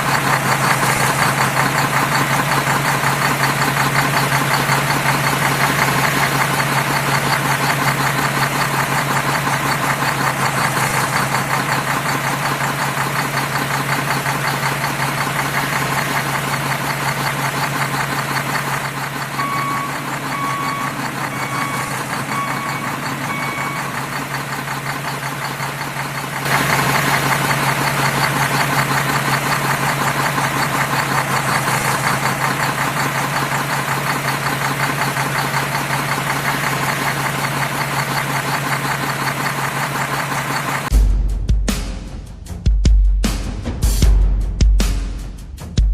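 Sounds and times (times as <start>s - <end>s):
diesel engine knocking: 0.0s - 45.9s
short beeps: 19.4s - 24.0s.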